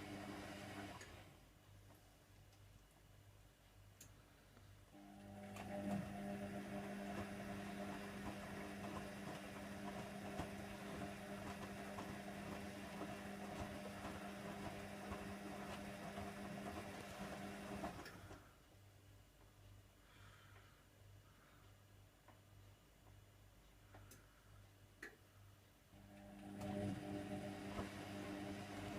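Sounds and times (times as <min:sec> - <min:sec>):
washer dryer humming: 0:00.0 - 0:01.3, 0:05.0 - 0:18.5, 0:26.0 - 0:28.9.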